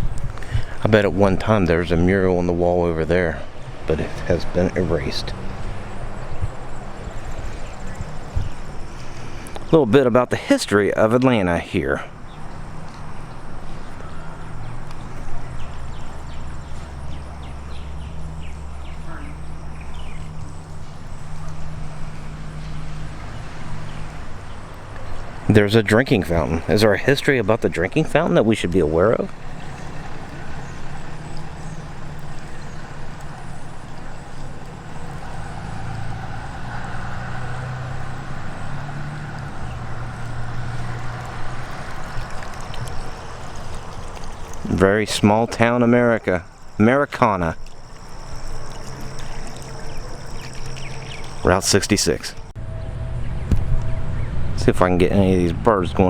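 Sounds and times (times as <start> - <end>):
steady low hum: 0.0 - 56.0
small birds chirping: 0.1 - 56.0.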